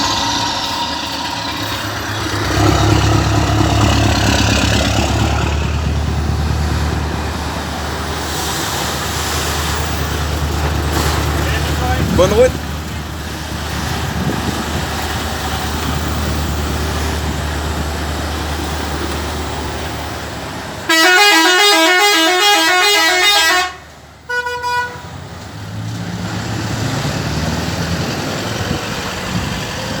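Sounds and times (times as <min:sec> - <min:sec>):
lorry engine rumble: 0:00.0 - 0:30.0
musical air horn tune: 0:20.9 - 0:25.1
short horn toot: 0:20.9 - 0:25.1.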